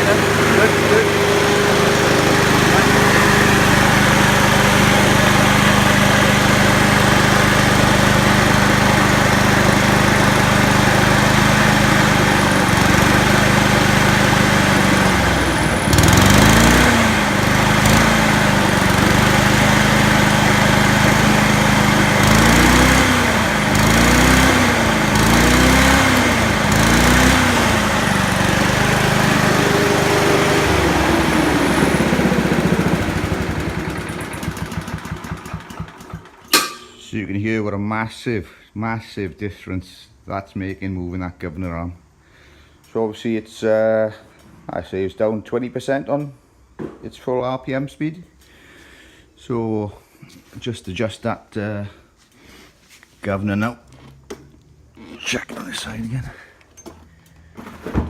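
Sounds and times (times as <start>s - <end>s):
lawn mower engine revving: 0.0s - 37.0s.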